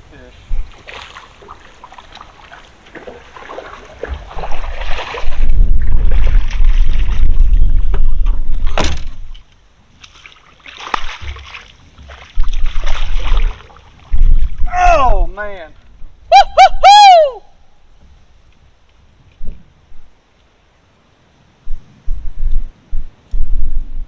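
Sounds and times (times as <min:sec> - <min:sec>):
water sloshing: 0:00.6 - 0:08.6, 0:10.0 - 0:14.7
low rumbling on microphone: 0:04.0 - 0:09.4, 0:11.8 - 0:16.3, 0:21.6 - 0:24.0.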